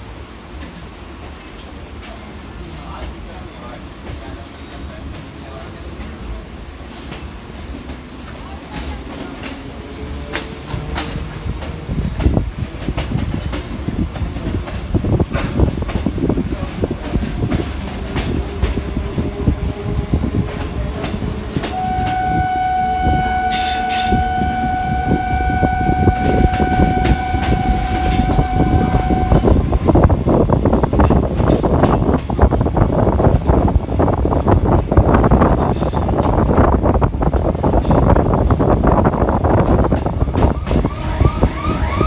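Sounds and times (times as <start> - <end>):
electric train on rails: 0.0 - 42.0
train horn long blast: 21.6 - 30.1, 40.9 - 42.0.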